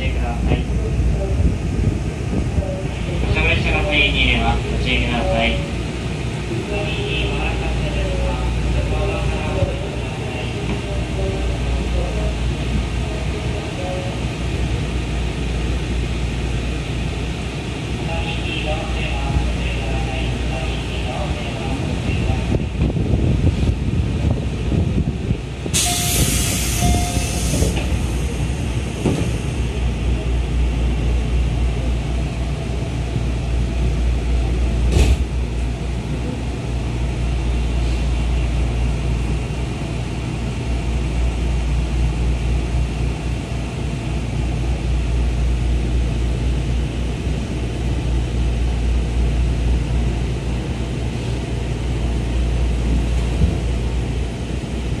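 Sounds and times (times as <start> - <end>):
train wheels rumbling: 0.0 - 55.0
air hiss: 25.8 - 27.9.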